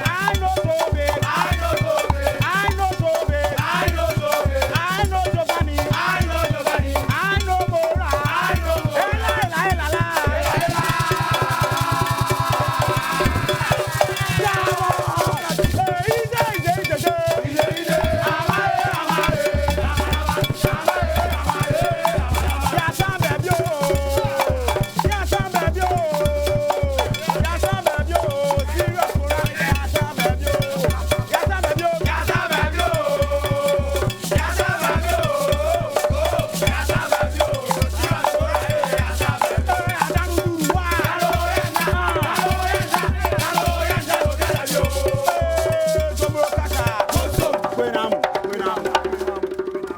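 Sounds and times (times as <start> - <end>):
upbeat band music: 4.8 - 26.4, 34.3 - 48.8.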